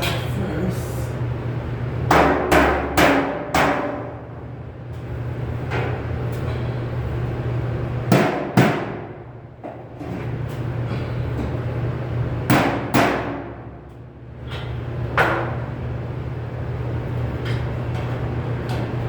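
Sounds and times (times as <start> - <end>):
hammer striking sheet metal: 2.1 - 4.2, 8.1 - 9.2, 12.5 - 13.7.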